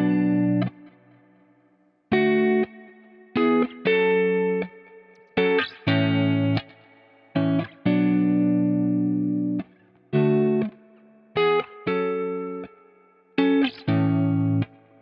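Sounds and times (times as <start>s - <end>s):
electric guitar chords with delay: 0.0s - 1.2s, 2.1s - 15.0s.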